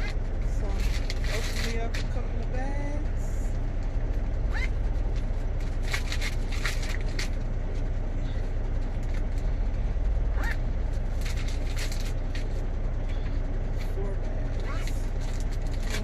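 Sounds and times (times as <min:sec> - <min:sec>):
truck engine idling: 0:00.0 - 0:16.0
plastic bags crinkling: 0:00.5 - 0:02.2, 0:05.0 - 0:07.8.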